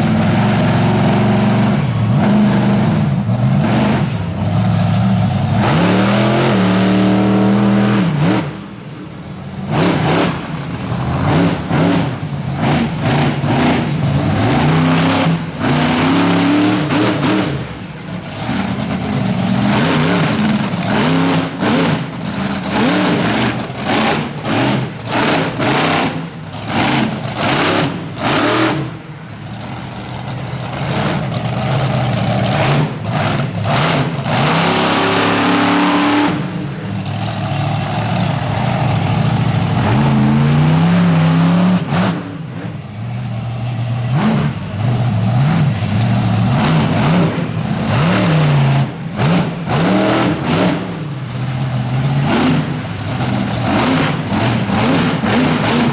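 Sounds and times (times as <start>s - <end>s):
truck engine revving: 0.0s - 55.9s.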